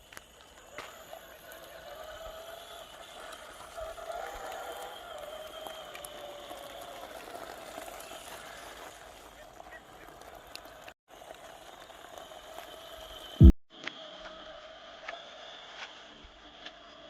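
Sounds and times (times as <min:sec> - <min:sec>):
electric motor and gearbox whining: 0:00.0 - 0:14.5.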